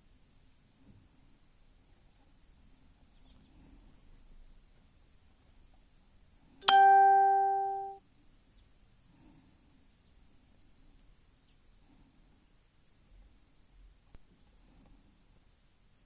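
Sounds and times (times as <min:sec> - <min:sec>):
bright musical note: 0:06.6 - 0:08.0.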